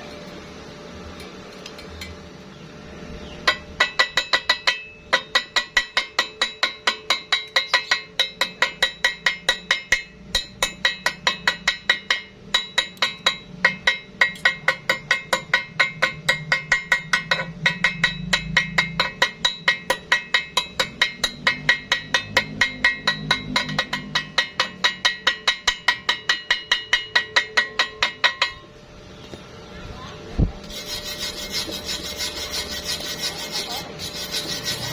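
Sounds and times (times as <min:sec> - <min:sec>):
hammer striking metal: 0:03.4 - 0:28.7.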